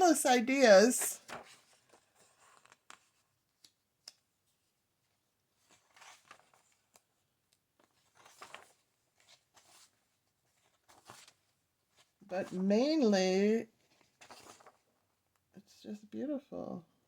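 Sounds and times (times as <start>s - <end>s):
book pages turning: 0.0s - 4.6s, 5.6s - 12.6s, 13.9s - 15.0s.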